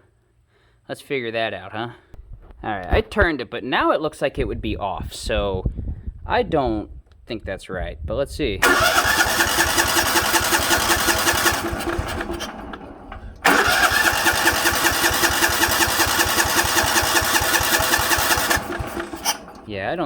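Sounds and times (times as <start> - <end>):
engine cranking without catching: 8.6 - 20.0.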